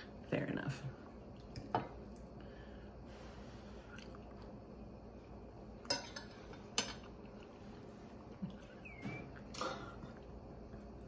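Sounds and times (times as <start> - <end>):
quiet chewing: 3.8 - 4.6.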